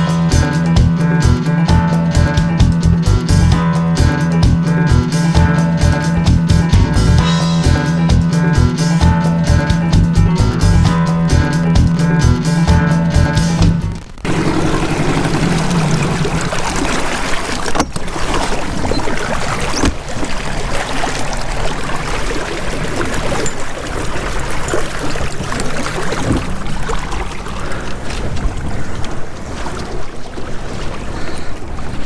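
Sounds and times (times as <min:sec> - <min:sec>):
water rushing along a boat hull: 0:00.0 - 0:32.0.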